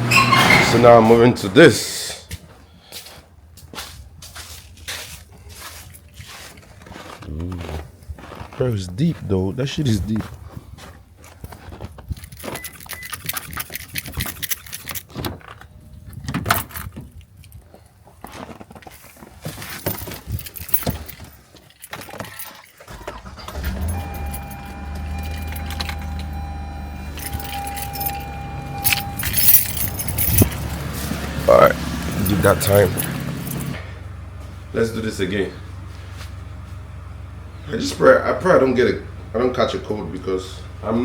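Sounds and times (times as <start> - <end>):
handling noises: 3.8 - 34.7
keys jangling: 12.0 - 15.6, 16.2 - 17.6, 19.5 - 33.8
car engine starting and idling: 22.8 - 41.0
electronic warning tone: 23.2 - 30.2.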